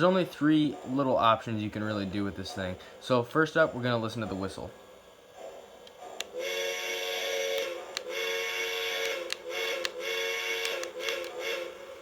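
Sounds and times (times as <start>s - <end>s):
toy train steam whistle blasts: 6.4s - 12.0s.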